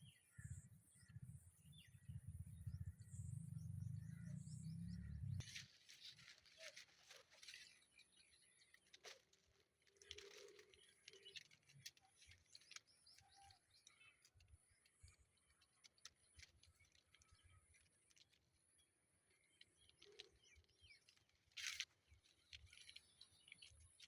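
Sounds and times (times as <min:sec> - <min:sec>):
faint bird chirps: 0:00.0 - 0:09.3, 0:09.9 - 0:24.0
low rumble: 0:02.0 - 0:05.4.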